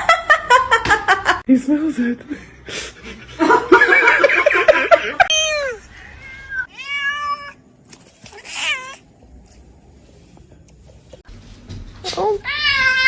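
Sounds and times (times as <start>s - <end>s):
cat meowing: 5.3s - 7.6s, 12.5s - 13.0s.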